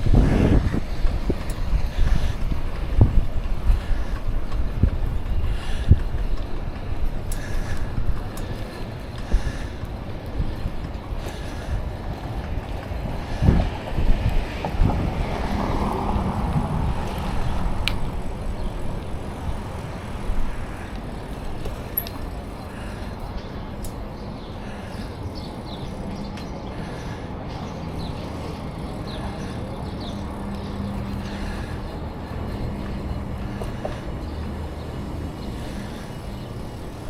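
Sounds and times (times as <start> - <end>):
wind noise on microphone: 0.0 - 22.0
bicycle rolling on pavement: 0.0 - 37.0.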